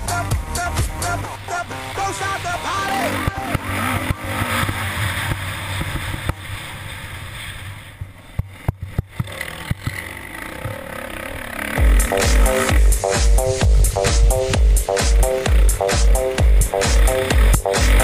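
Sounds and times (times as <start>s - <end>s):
music: 0.0s - 3.6s, 11.8s - 18.0s
motorbike engine revving: 0.0s - 18.0s.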